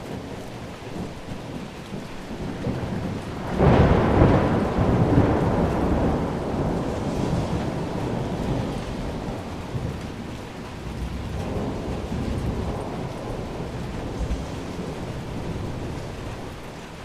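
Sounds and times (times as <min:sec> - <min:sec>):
heavy rain falling: 0:00.0 - 0:17.0
rolling thunder rumble: 0:00.0 - 0:17.0.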